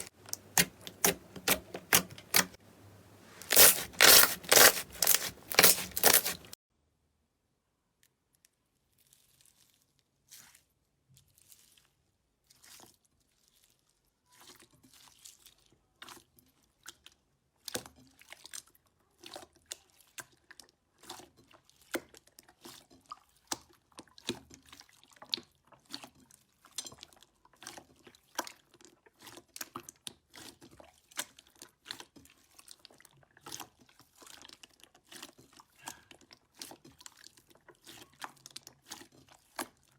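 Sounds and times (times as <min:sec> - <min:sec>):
slime crackling and popping: 0:03.2 - 0:06.6.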